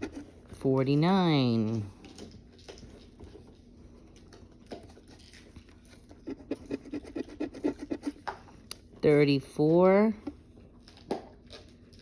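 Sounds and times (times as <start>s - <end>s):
lottery ticket being scratched: 6.1s - 8.2s.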